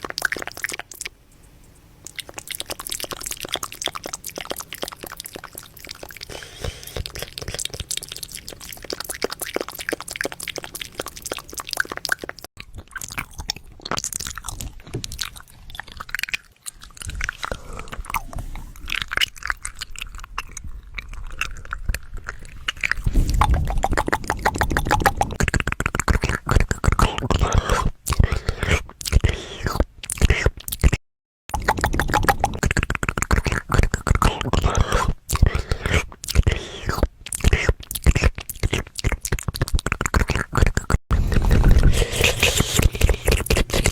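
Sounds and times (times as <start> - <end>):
wet mouth sounds: 0.0 - 1.2, 2.0 - 43.9.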